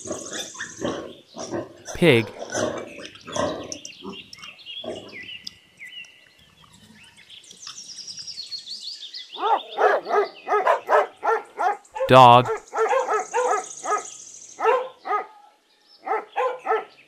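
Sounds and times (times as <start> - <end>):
pigs grunting: 0.0 - 5.3
birdsong chirping: 0.0 - 17.0.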